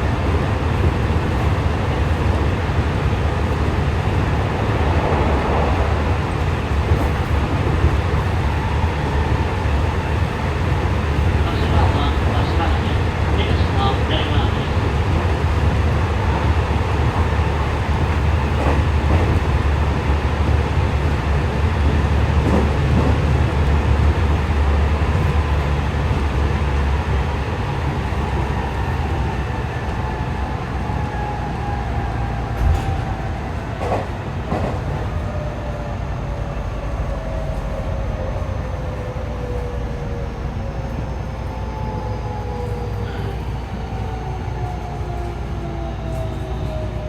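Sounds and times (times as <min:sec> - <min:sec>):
train wheels rumbling on rail: 0:00.0 - 0:47.0
rail joint clicks: 0:00.1 - 0:21.2, 0:21.8 - 0:23.7, 0:32.4 - 0:35.4.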